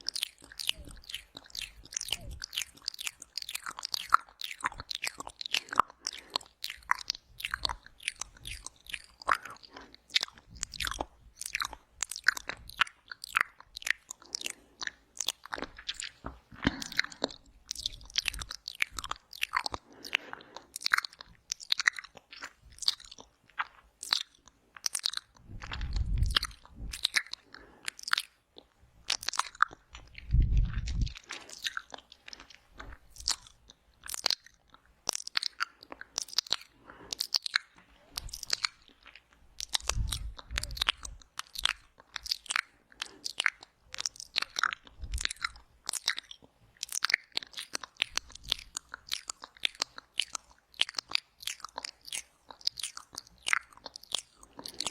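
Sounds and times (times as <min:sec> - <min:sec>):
lip smacks: 0:00.0 - 0:54.9
tongue clicks: 0:00.0 - 0:54.9.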